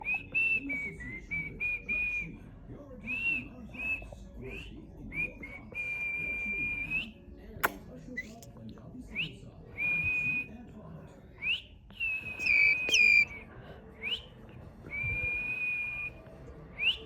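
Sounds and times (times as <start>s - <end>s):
high whistled notes: 12.4s - 13.3s.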